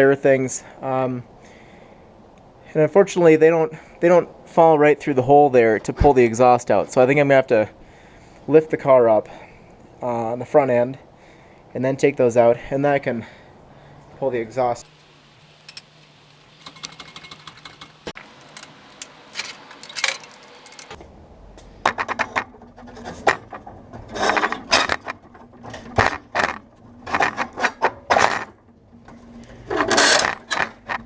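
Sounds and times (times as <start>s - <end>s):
light metal clicks and clinks: 14.8s - 21.0s
metal scraping and rattling: 14.8s - 21.0s.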